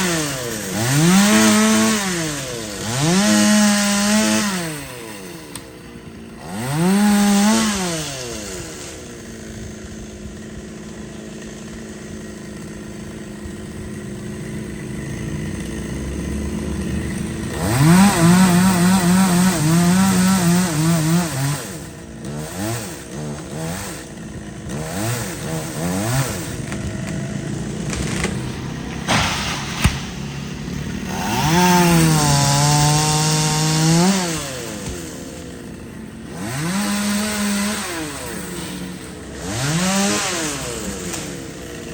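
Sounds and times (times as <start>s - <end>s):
chainsaw revving: 0.0s - 41.9s
sharp knock: 28.0s - 30.3s.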